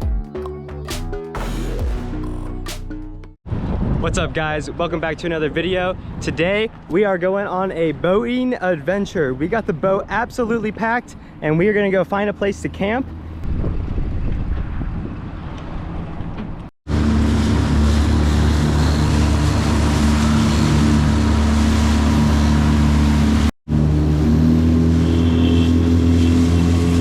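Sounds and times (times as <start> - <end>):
wind: 3.5 - 27.0
boat motor running: 16.9 - 27.0
water noise: 16.9 - 27.0.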